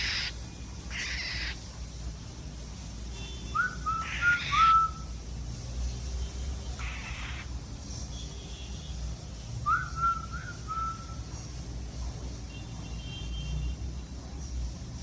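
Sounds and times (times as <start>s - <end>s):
cockatiel raspy chirps: 0.0s - 1.7s, 3.6s - 5.1s, 6.8s - 7.5s
cockatiel whistled notes: 3.5s - 5.1s, 9.7s - 11.2s.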